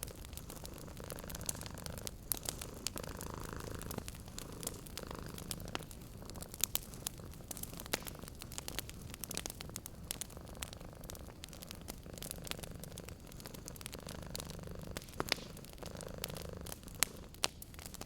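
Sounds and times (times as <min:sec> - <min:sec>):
cat purring: 0:00.0 - 0:18.0
wood fire crackling: 0:00.0 - 0:18.0.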